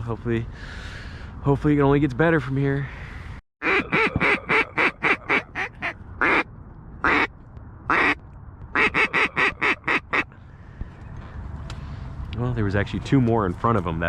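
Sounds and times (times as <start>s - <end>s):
duck quacking: 3.6s - 6.4s, 7.0s - 7.3s, 7.9s - 8.2s, 8.8s - 10.3s.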